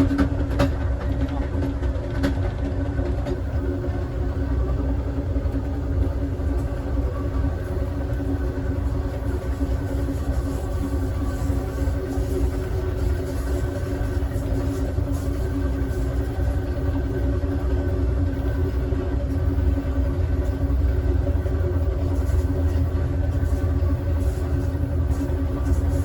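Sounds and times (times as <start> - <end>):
train car rumbling on track: 0.0 - 26.0.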